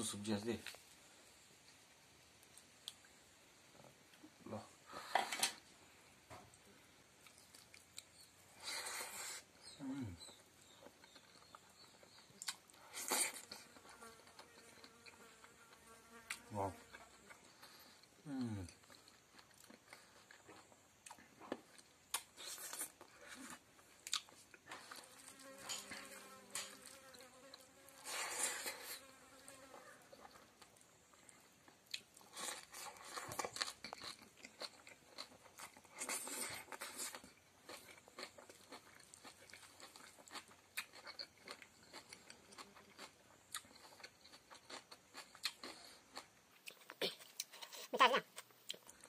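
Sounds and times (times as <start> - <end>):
person chewing and smacking: 6.5 - 8.4, 10.2 - 15.3, 16.3 - 25.6, 30.1 - 49.0
crunchy chewing: 6.5 - 49.0.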